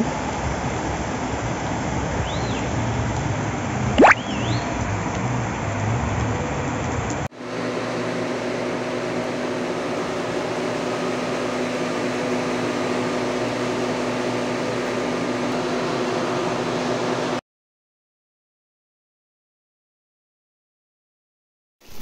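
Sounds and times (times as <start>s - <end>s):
floodwater rushing: 4.0s - 4.5s.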